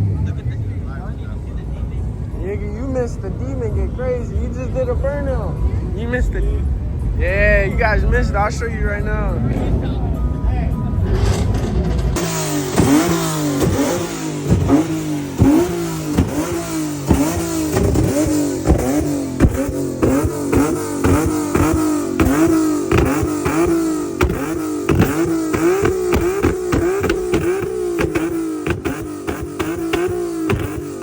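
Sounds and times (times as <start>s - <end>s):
car engine revving hard: 11.0s - 31.0s.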